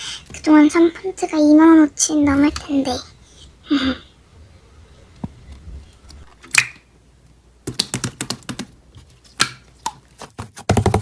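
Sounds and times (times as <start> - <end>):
sharp clicks and taps: 7.6 - 8.7.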